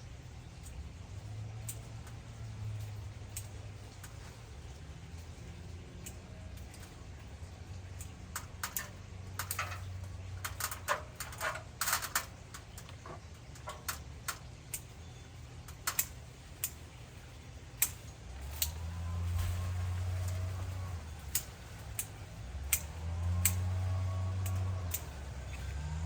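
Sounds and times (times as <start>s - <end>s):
twigs snapping being cut: 15.6s - 16.9s, 17.7s - 26.0s.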